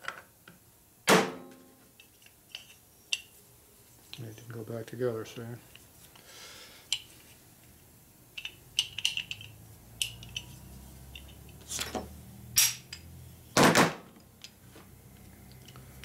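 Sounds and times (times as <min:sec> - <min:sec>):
metal engine parts clinking: 0:08.4 - 0:13.1.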